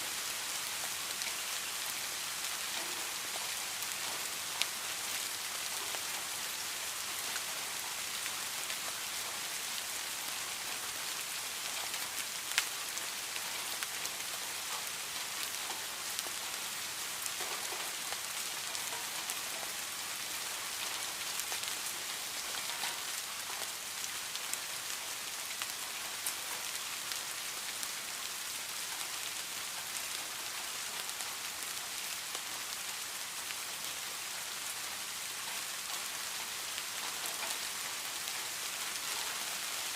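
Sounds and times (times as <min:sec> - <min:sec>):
steady rain: 0:00.0 - 0:39.9
raindrop ticks: 0:02.7 - 0:04.8, 0:17.2 - 0:19.8, 0:20.7 - 0:23.7, 0:35.5 - 0:39.7.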